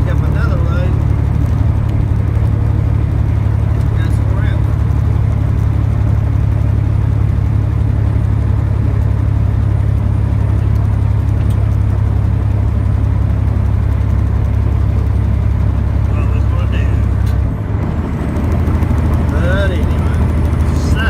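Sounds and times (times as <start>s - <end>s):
road noise: 0.0s - 21.0s
truck diesel engine drone: 0.0s - 21.0s.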